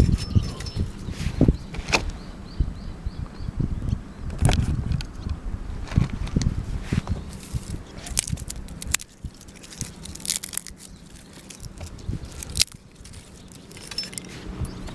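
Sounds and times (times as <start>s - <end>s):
crunching toast being eaten: 7.3s - 14.5s.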